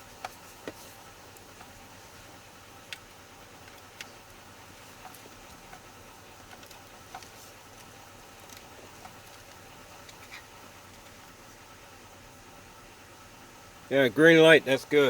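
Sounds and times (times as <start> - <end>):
steady background hiss: 0.0 - 15.0
small clicks and taps of tools: 5.0 - 11.1.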